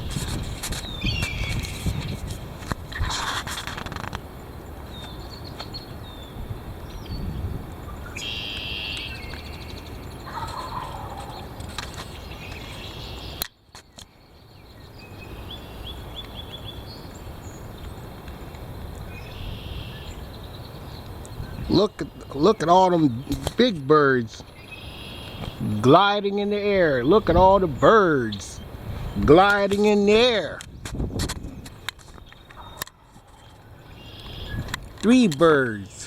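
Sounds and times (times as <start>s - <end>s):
wind buffeting microphone: 0.0s - 8.2s, 15.9s - 23.6s, 26.6s - 35.6s
bird calls: 0.0s - 36.0s
bird chirps: 0.8s - 2.2s, 4.8s - 18.0s, 19.1s - 23.4s, 24.3s - 25.6s, 32.1s - 34.7s.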